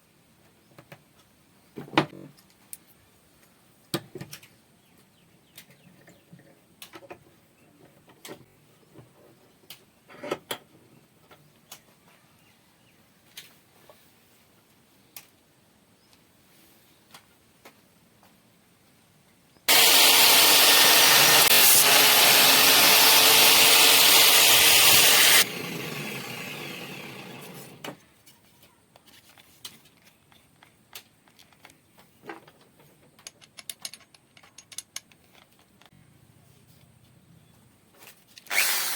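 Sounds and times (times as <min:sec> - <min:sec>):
electric drill shaving wood: 0:19.7 - 0:27.9, 0:38.5 - 0:38.9.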